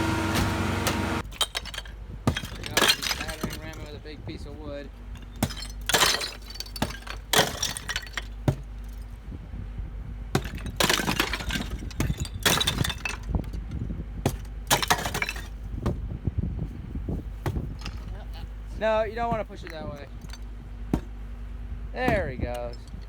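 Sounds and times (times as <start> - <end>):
debris crashing: 0.0 - 4.0, 5.1 - 8.7, 10.4 - 13.5, 14.3 - 15.7
glass breaking: 0.2 - 4.0, 5.2 - 8.4, 10.4 - 13.3, 14.7 - 15.6.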